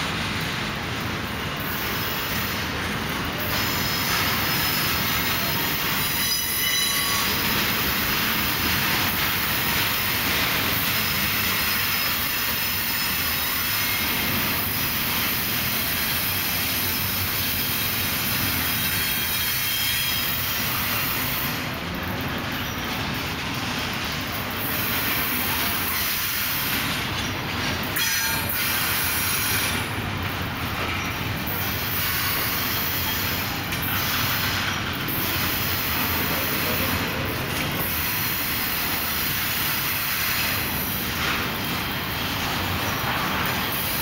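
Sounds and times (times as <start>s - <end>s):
freight train rumbling past: 0.0s - 44.0s
high wheel squeal: 3.4s - 7.6s, 18.7s - 21.6s, 28.0s - 29.8s.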